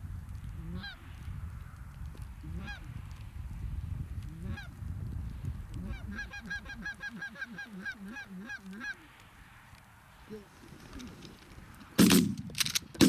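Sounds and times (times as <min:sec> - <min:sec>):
geese honking: 0:05.8 - 0:09.2.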